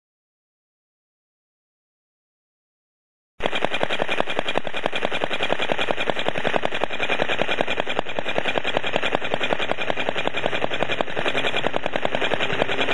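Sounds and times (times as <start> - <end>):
model petrol engine running: 3.4 - 12.9.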